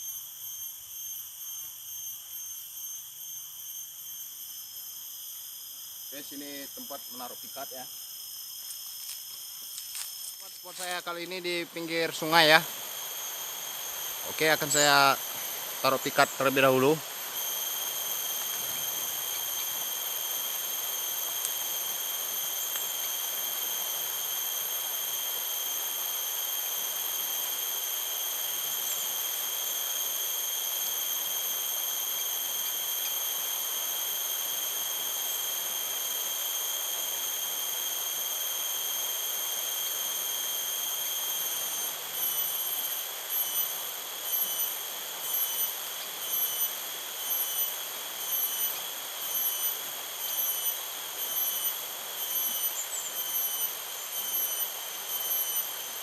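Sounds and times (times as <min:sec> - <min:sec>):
insects droning: 0:00.0 - 0:56.0
outdoor ambient hiss: 0:00.0 - 0:56.0.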